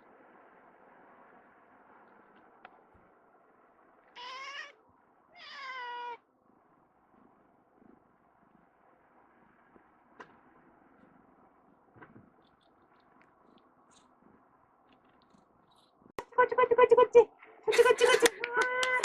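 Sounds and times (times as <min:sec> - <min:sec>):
cat meowing: 0:04.1 - 0:06.2.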